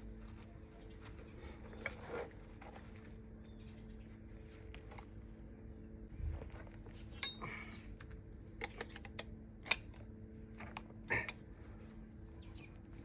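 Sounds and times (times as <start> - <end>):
faint steady hum: 0.0 - 13.0
metal tools clinking on steel: 7.1 - 7.6.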